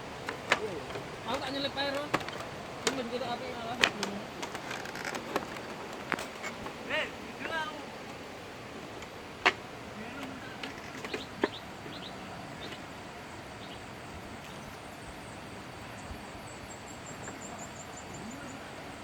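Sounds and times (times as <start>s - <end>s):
steady outdoor hiss: 0.0s - 19.0s
faint clicks: 0.2s - 6.8s, 8.9s - 12.9s.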